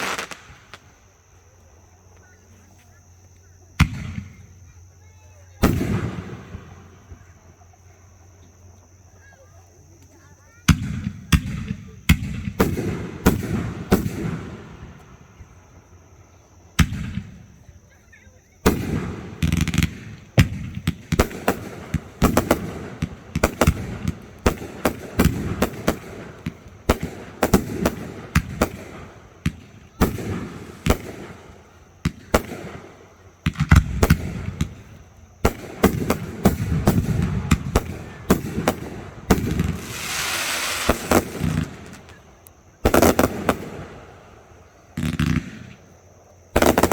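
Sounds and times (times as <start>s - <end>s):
fireworks hissing: 0.0s - 1.1s, 36.2s - 43.9s
fireworks bursting with sharp bangs: 0.0s - 1.9s, 3.8s - 7.8s, 10.6s - 15.6s, 16.7s - 17.7s, 18.6s - 46.9s.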